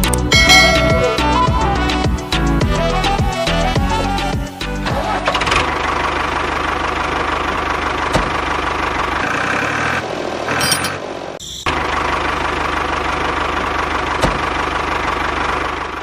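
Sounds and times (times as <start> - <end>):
music: 0.0 - 5.5.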